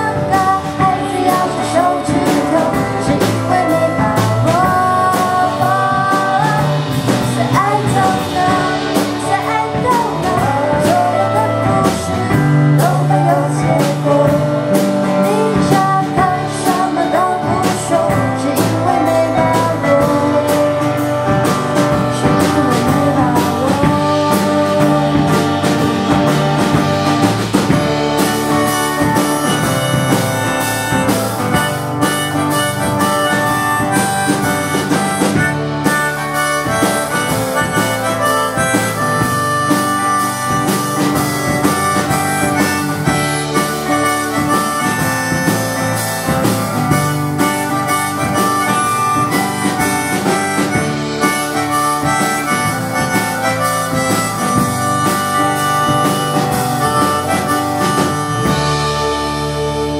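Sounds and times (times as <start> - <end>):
band playing instrumental music: 0.0 - 59.9.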